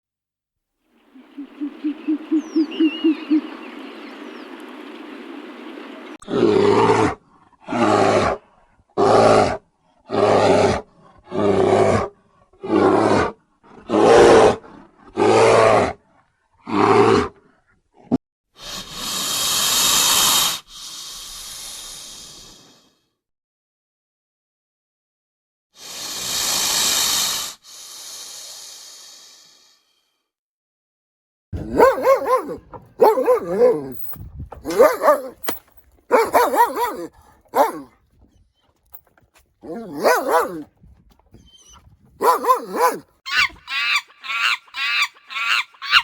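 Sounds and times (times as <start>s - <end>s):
short pulsed animal calls: 1.0s - 4.7s
animal calling: 1.0s - 6.2s, 31.6s - 34.0s, 36.1s - 38.8s, 39.6s - 40.6s, 41.4s - 46.0s.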